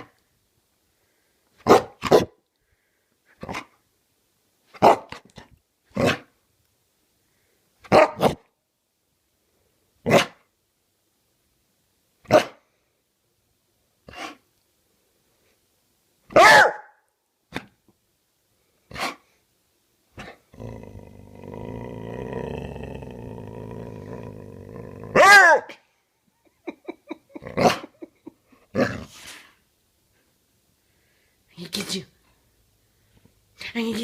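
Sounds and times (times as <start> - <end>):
dog barking: 1.6 - 2.4, 4.8 - 5.2, 7.9 - 8.5, 10.0 - 10.4, 12.3 - 12.6, 16.3 - 17.0, 25.2 - 25.8.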